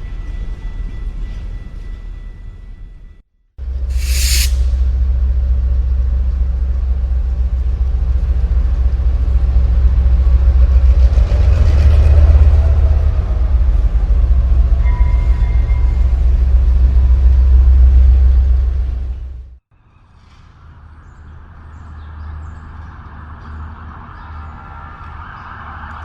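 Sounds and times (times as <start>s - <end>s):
thin high tone: 4.0s - 4.8s.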